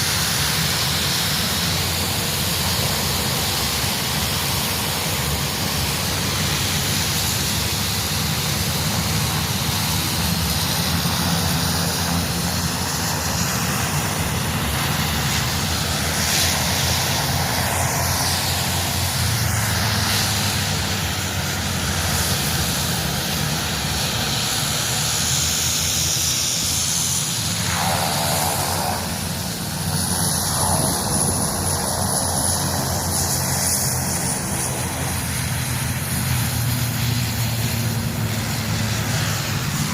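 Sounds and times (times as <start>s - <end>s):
military aircraft flying past: 0.0s - 39.9s.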